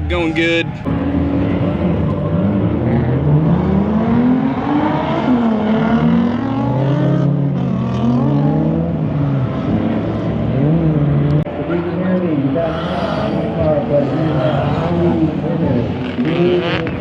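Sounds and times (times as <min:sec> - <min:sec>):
drift car engines revving: 0:00.7 - 0:17.0.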